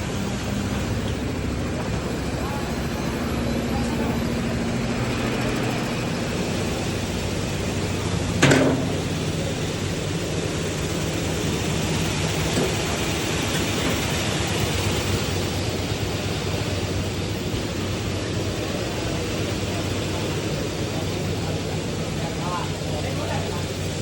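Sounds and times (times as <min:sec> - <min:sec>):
machinery humming: 0:00.0 - 0:24.0
sharp knock: 0:08.4 - 0:09.2.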